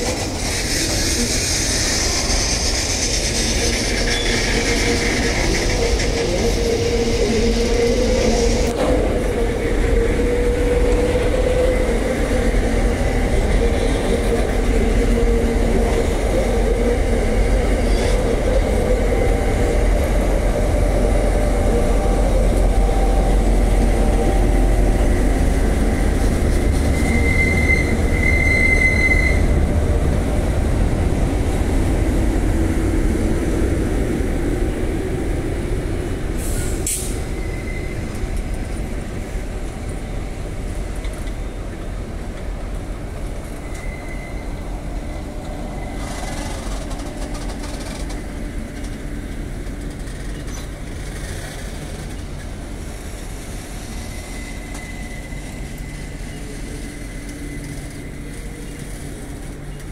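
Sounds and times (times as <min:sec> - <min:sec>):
high wheel squeal: 0:00.0 - 0:08.7, 0:17.5 - 0:19.3, 0:26.2 - 0:29.8, 0:36.4 - 0:38.2, 0:43.4 - 0:48.2, 0:53.0 - 0:59.8
trains rumbling past: 0:00.0 - 0:59.9.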